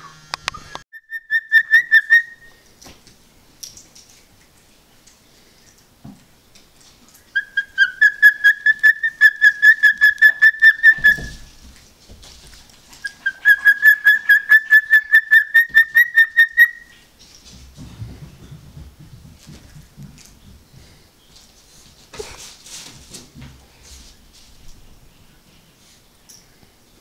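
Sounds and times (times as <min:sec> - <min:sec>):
cockatiel whistling: 0:00.0 - 0:02.6, 0:07.4 - 0:11.4, 0:13.0 - 0:17.0.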